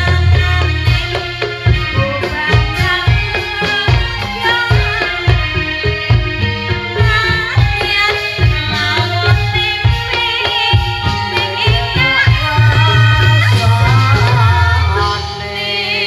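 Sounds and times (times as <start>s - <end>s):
hand drums beating: 0.0s - 15.4s
melodic pitched instruments: 0.0s - 16.0s
person singing: 7.0s - 16.0s.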